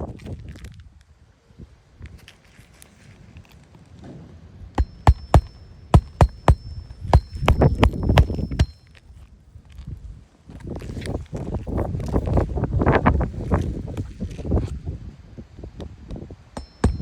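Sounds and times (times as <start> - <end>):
hammer striking roofing nails: 4.8 - 8.8, 16.6 - 17.0
faint metallic ring: 4.8 - 9.1, 16.6 - 17.0.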